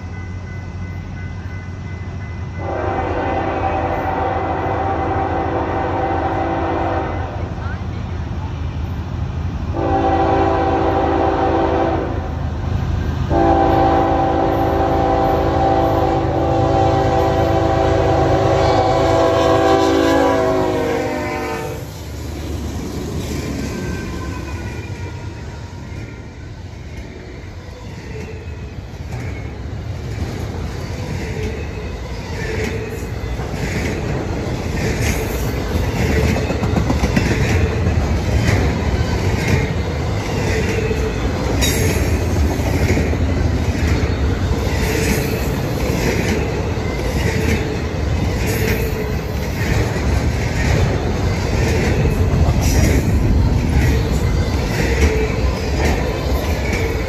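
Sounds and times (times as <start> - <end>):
freight train rolling past: 0.0 - 57.0
wheels clickety-clack: 29.0 - 57.0.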